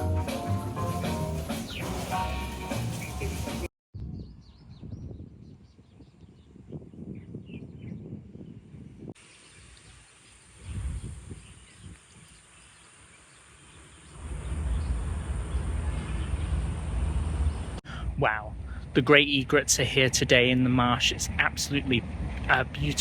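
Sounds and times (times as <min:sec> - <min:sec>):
wind rumble on microphone: 0:04.0 - 0:12.7, 0:14.0 - 0:19.0, 0:20.1 - 0:23.0.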